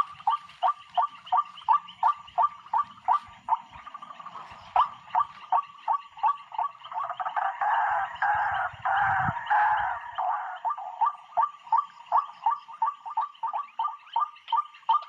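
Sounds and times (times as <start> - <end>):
bird harsh calls and chatter: 0.0 - 15.0.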